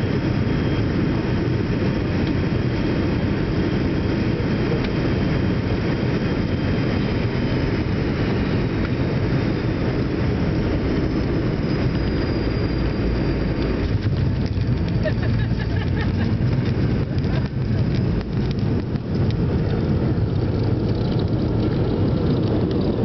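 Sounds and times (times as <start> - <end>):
jet airliner rumbling: 0.0 - 23.0
faint high whine: 7.2 - 14.6.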